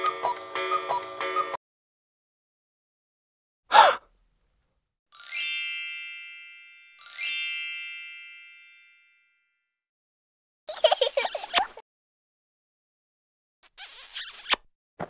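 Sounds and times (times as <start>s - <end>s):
cartoon chime sound effect: 5.2s - 9.2s.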